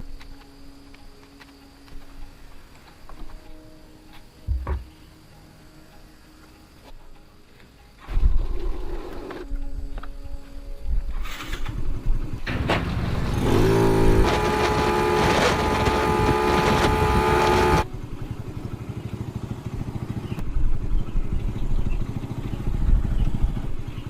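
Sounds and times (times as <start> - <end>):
motorcycle engine revving: 12.0 - 20.5.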